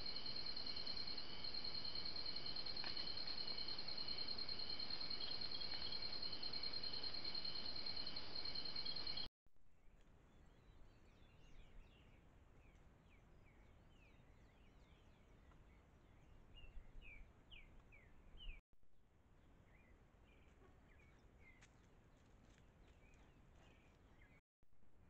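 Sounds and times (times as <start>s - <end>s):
birds chirping: 0.0s - 9.3s.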